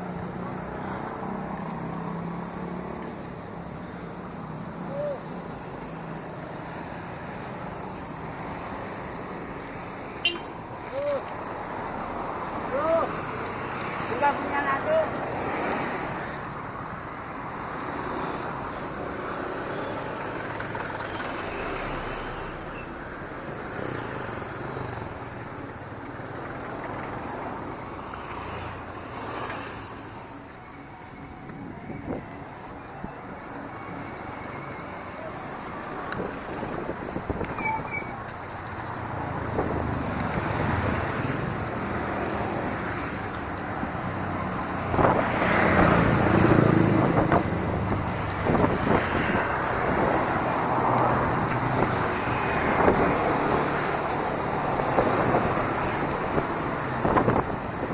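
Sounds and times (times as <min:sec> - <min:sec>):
wind on microphone: 0:44.8 - 0:57.9.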